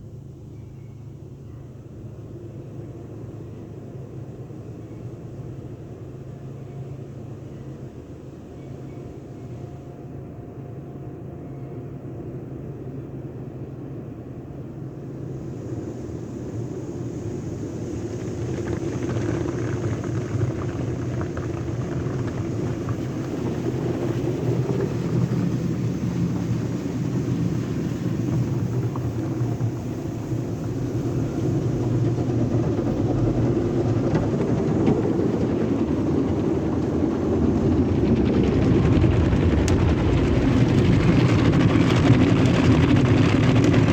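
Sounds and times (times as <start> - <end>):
car wash equipment rumbling: 15.2 - 43.9.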